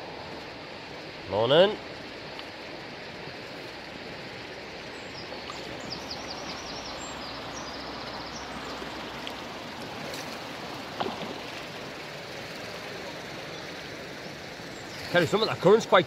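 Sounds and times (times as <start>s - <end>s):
river water rushing: 0.0s - 16.0s
small bird chirping: 4.8s - 9.2s.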